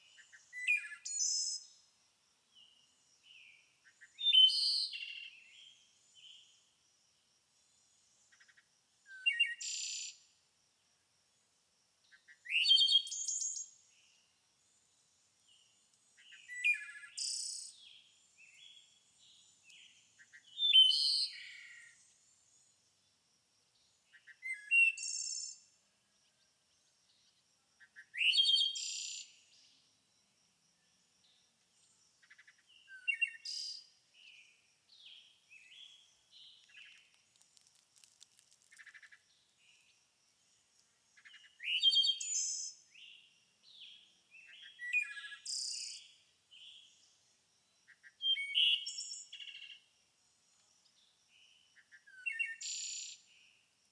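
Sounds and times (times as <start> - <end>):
songbird singing trilled phrases: 0.1 - 1.8, 2.6 - 6.5, 8.4 - 10.2, 16.2 - 22.0, 24.1 - 25.6, 27.8 - 29.8, 32.2 - 37.2, 41.2 - 47.0, 47.9 - 49.8, 51.8 - 53.3.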